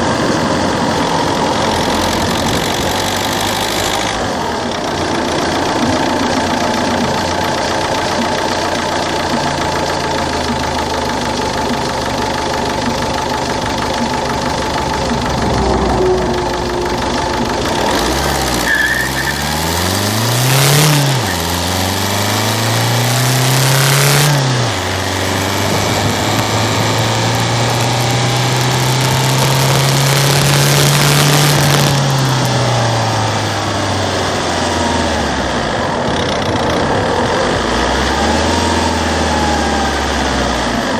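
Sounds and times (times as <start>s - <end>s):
diesel engine idling and revving: 0.0s - 40.9s.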